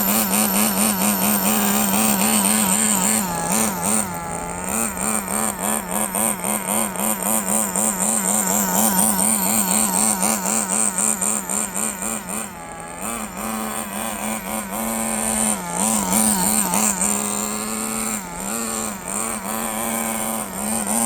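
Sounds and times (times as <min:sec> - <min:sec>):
small engine buzzing: 0:00.0 - 0:21.0.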